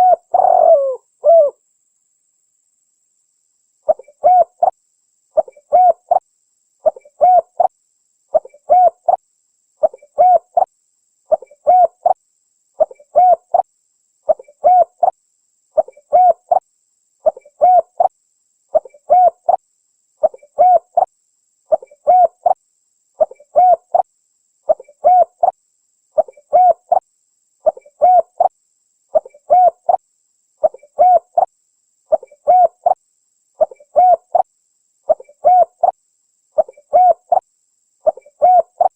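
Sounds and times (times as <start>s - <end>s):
dove cooing: 0.0s - 1.6s, 3.9s - 4.7s, 5.4s - 6.2s, 6.8s - 7.7s, 8.3s - 9.2s, 9.8s - 10.7s, 11.3s - 12.2s, 12.8s - 13.6s, 14.3s - 15.1s, 15.8s - 16.6s, 17.2s - 18.1s, 18.7s - 19.6s, 20.2s - 21.1s, 21.7s - 22.6s, 23.2s - 24.0s, 24.7s - 25.5s, 26.2s - 27.0s, 27.6s - 28.5s, 29.2s - 30.0s, 30.6s - 31.5s, 32.1s - 33.0s, 33.6s - 34.4s, 35.1s - 35.9s, 36.6s - 37.4s, 38.0s - 38.9s.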